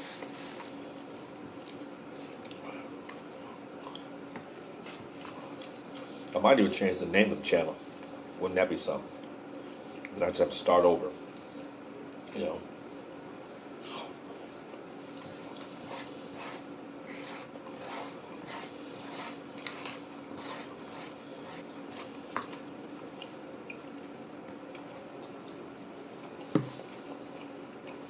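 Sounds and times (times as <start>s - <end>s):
steady low hum: 0.0s - 28.0s
chewing food: 0.2s - 6.4s, 9.2s - 10.2s, 14.1s - 28.0s.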